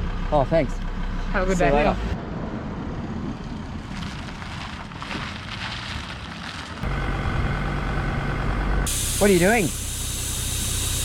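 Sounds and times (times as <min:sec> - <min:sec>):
engine idling: 0:00.0 - 0:02.2, 0:06.8 - 0:11.0
crackling rustling noise: 0:03.8 - 0:06.8.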